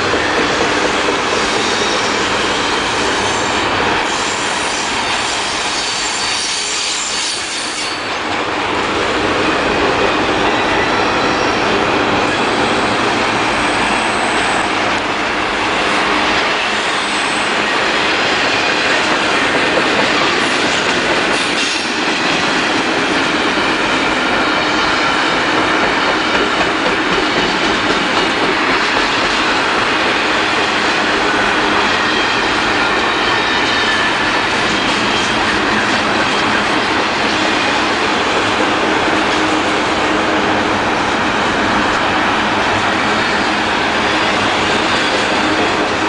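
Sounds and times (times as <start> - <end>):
steel wheels on rail: 0.0 - 46.0
high wheel squeal: 4.1 - 8.2.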